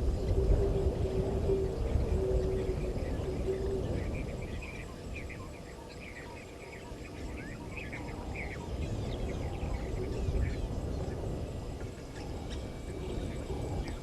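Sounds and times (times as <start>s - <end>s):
wild birds chirping: 0.0s - 14.0s.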